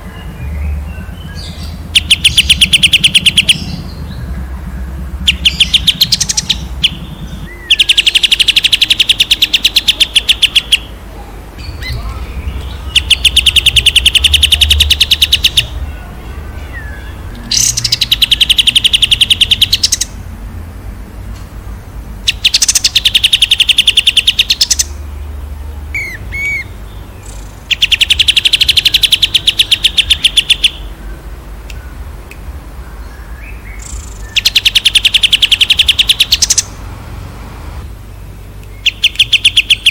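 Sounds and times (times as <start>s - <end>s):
songbird rapid trills: 0.0s - 11.0s, 11.6s - 20.2s, 22.2s - 32.0s, 32.6s - 36.9s, 37.8s - 39.9s
soft bird chirps: 11.6s - 20.2s, 32.7s - 36.8s, 38.0s - 39.9s.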